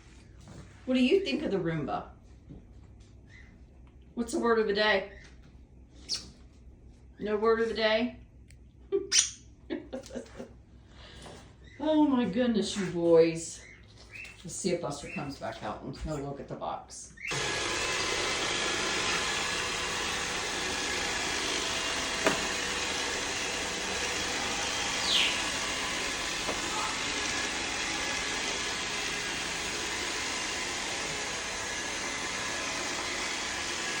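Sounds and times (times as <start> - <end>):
robot vacuum whirring: 17.3 - 34.0.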